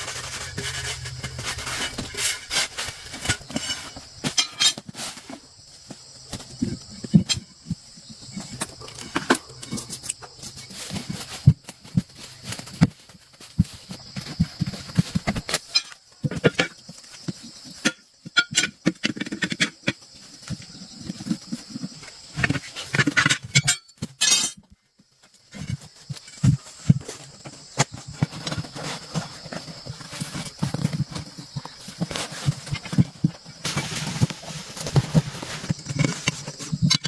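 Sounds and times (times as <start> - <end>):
steady high hiss: 29.1 - 36.6.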